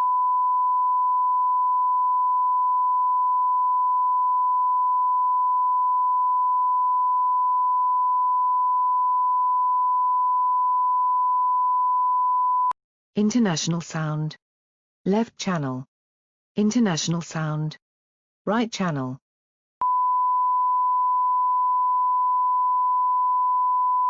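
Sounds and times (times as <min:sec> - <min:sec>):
sine wave test tone: 0:00.0 - 0:12.8, 0:19.8 - 0:24.0.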